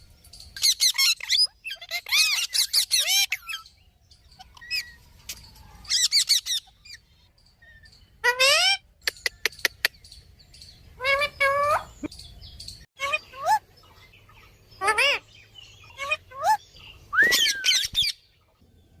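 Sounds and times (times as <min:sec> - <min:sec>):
parrot whistling calls: 0:17.1 - 0:18.2.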